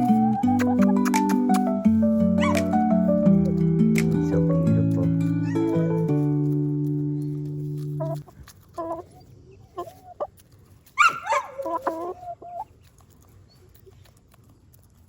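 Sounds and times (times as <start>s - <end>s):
hen squawk: 0.0s - 1.7s
hens clucking: 0.0s - 1.8s, 7.5s - 14.1s
held musical chord: 0.0s - 8.2s.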